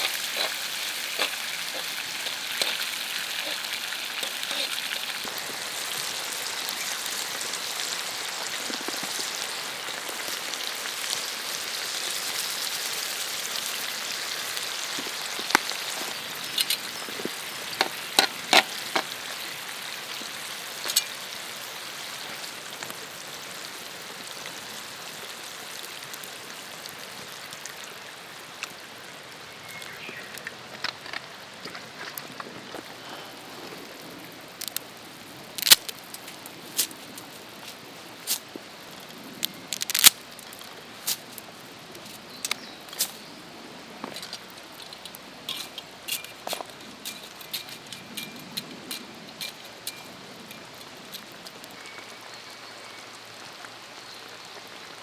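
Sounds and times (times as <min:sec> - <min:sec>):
food sizzling in a pan: 0:00.0 - 0:30.4.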